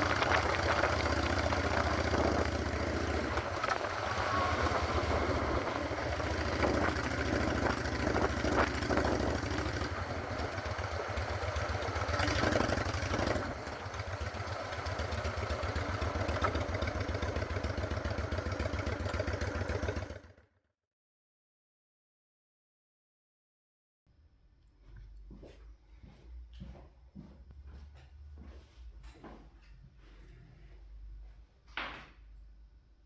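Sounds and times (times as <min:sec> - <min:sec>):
motorcycle engine exhaust beat: 0:00.0 - 0:20.1.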